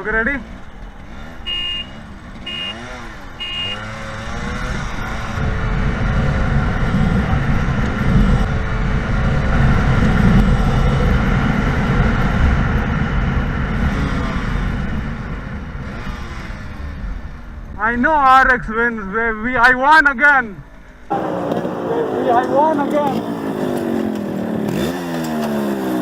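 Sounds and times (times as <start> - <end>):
motorcycle engines accelerating hard: 0.0 - 17.8, 21.1 - 26.0
horn honk: 1.2 - 6.7.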